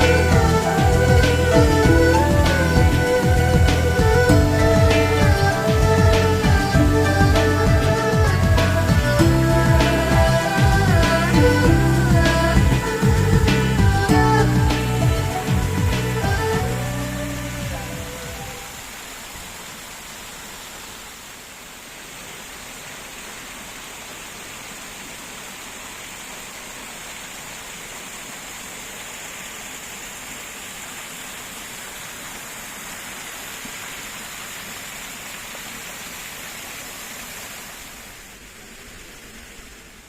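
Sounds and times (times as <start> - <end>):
background music: 0.0 - 18.7
rushing water: 0.0 - 40.0.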